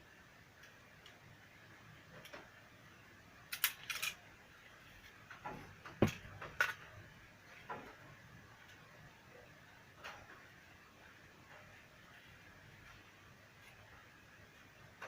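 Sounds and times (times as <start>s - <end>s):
tools and parts clicking: 3.5s - 4.2s.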